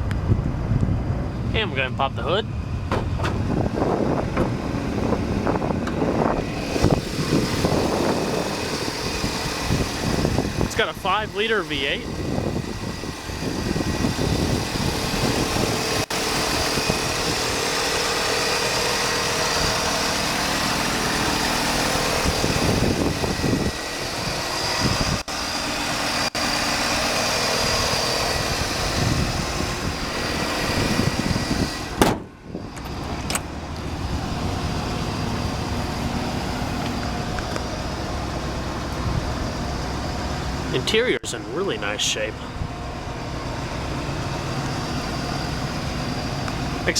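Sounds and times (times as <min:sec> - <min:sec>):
car engine idling: 0:00.0 - 0:46.9
sharp knock: 0:02.9 - 0:03.4, 0:32.0 - 0:32.2.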